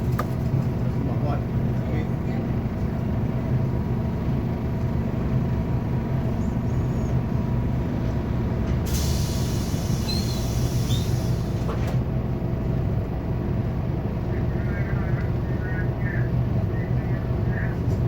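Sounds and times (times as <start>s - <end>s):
bus diesel engine humming: 0.0s - 18.0s
compressed air hissing: 8.9s - 11.5s.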